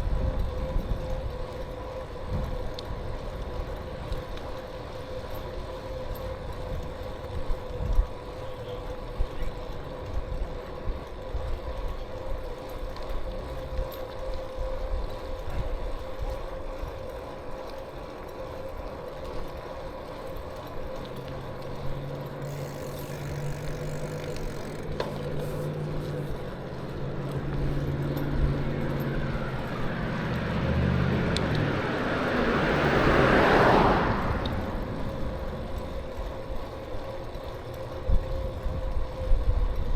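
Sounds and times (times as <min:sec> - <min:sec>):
wind and road noise: 0:00.0 - 0:39.9
motor vehicle passing: 0:20.4 - 0:38.5.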